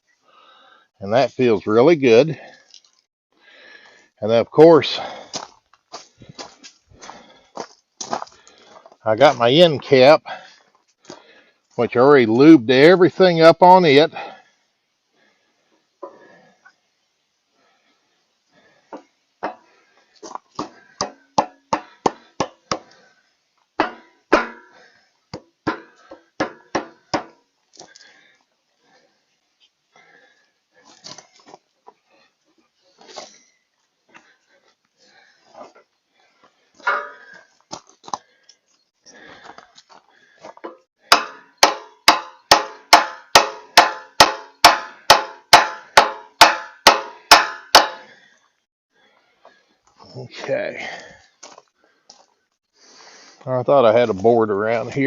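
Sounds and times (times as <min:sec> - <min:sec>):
hammer tapping on metal: 0:41.1 - 0:48.0.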